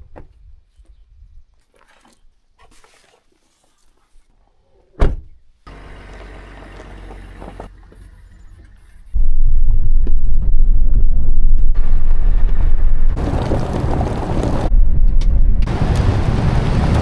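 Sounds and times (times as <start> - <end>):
low rumble: 9.1 - 17.0.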